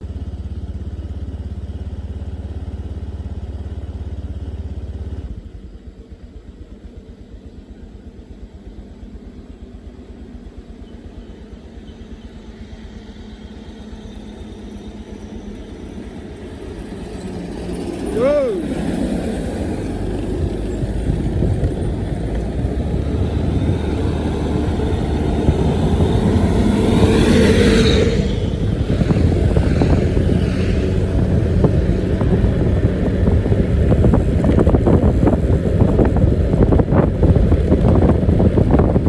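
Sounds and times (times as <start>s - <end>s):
bus engine rumbling: 10.0s - 39.0s.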